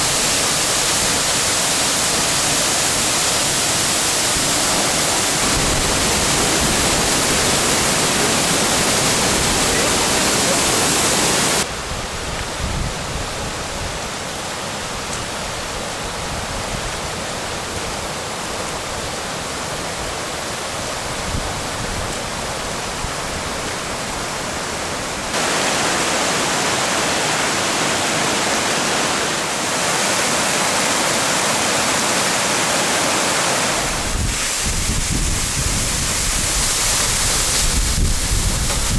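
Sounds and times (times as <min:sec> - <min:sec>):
waterfall roaring: 0:00.0 - 0:38.9.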